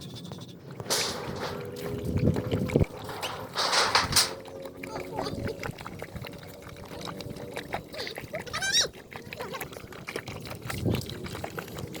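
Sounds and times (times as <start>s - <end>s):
animals suckling with wet smacking: 1.6s - 3.1s, 4.4s - 12.0s.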